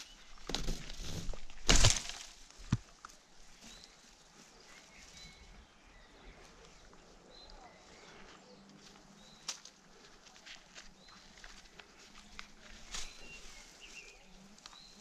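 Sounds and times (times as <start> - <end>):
faint bird chirps: 3.5 - 9.6.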